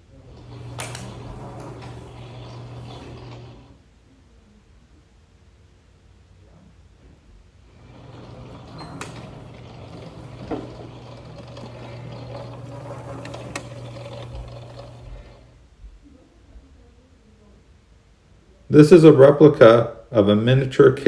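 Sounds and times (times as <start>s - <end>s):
baler motor hum and clatter: 0.0s - 3.8s, 7.7s - 15.6s.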